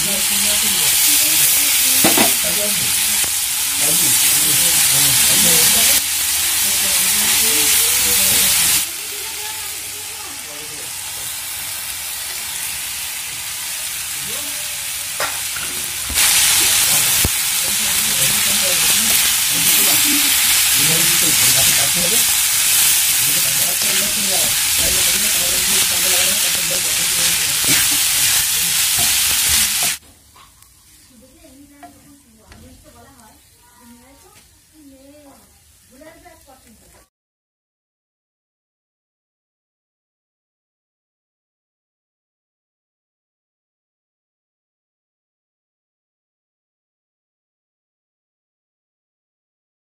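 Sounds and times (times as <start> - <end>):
food sizzling in a pan: 0.0 - 37.1.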